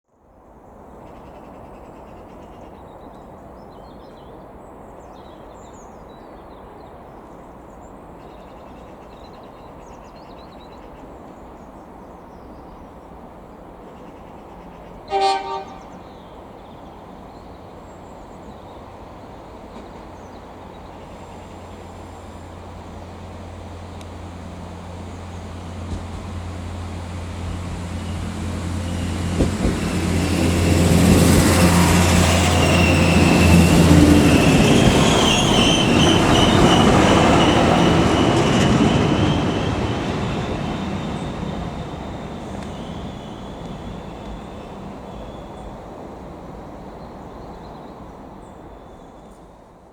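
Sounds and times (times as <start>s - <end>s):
two-tone train horn blast: 15.1s - 16.1s
diesel engine hum: 21.4s - 46.6s.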